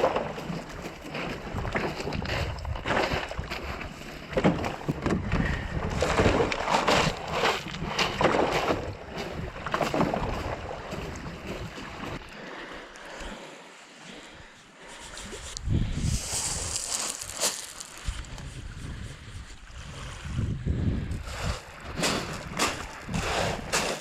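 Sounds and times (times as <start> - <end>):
water splashing around canoe: 0.0 - 13.5, 19.0 - 24.0
wind buffeting microphone: 1.2 - 4.0, 4.6 - 12.2, 15.2 - 24.0.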